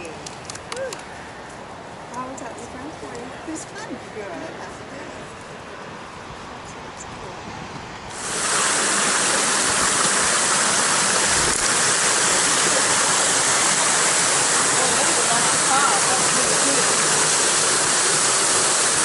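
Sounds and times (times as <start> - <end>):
moving water hiss: 8.1 - 19.0
whitewater roaring: 8.1 - 19.0.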